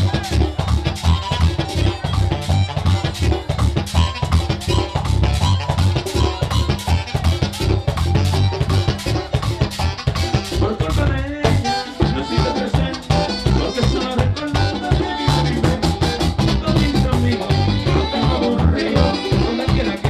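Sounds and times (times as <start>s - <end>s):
live latin band playing: 0.0s - 20.0s.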